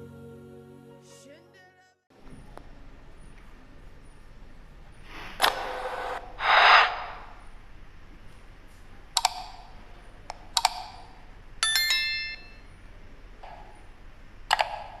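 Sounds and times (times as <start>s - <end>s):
sharp clicks: 9.1s - 11.2s, 14.5s - 15.0s
ringing chime: 11.6s - 12.7s.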